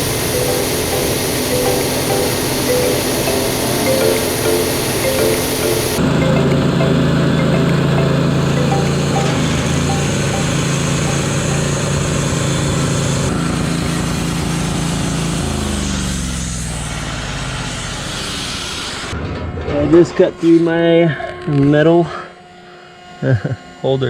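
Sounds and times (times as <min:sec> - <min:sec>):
small gasoline engine running: 0:00.0 - 0:16.6.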